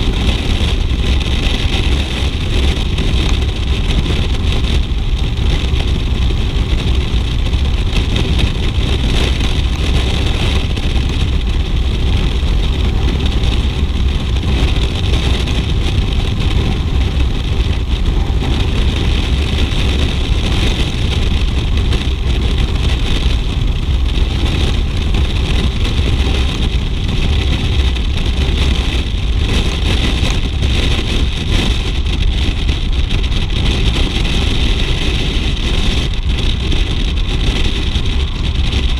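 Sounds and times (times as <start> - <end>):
motorcycle engine running: 0.0 - 38.9
wind rushing on microphone: 0.0 - 38.9.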